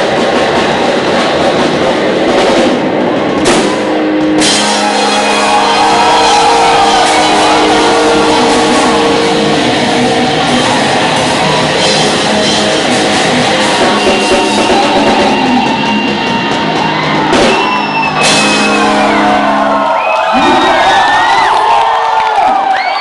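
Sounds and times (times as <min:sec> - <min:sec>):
live rock band: 0:00.0 - 0:21.5
crowd shouting and whooping: 0:00.0 - 0:23.0
shouted vocals: 0:04.7 - 0:11.9.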